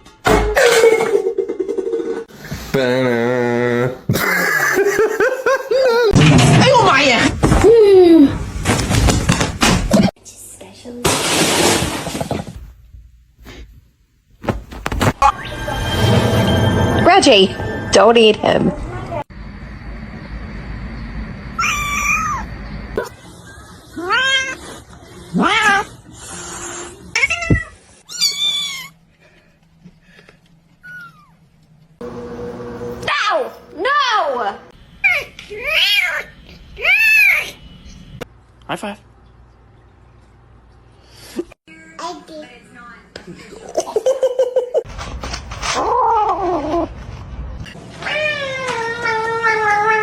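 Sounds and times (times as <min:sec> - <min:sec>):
cat yowling: 0:21.6 - 0:22.5, 0:48.0 - 0:50.0.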